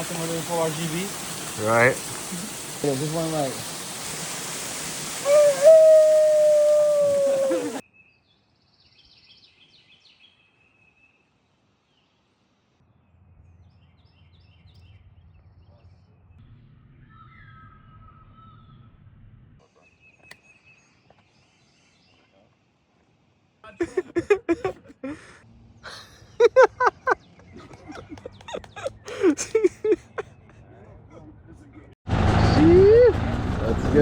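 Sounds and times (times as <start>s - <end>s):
faint bird chirps: 17.0s - 18.9s.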